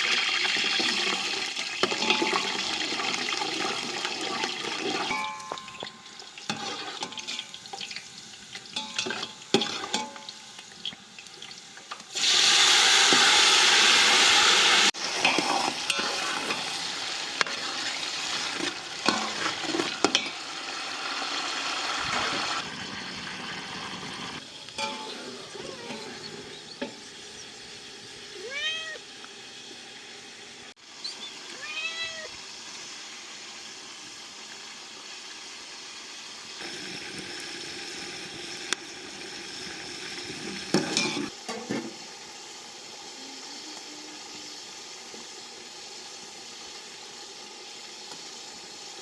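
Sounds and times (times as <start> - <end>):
food frying: 0.0 - 49.0
cat meowing: 25.4 - 26.3, 28.4 - 29.0, 31.5 - 32.4.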